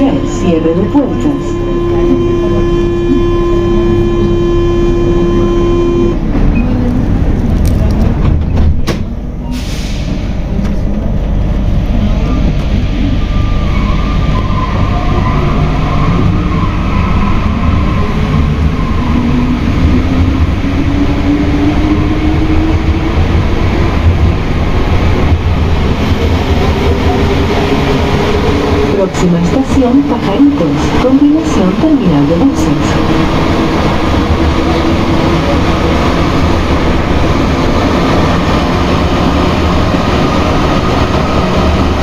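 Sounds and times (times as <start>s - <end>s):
door-closing buzzer: 1.0s - 6.2s.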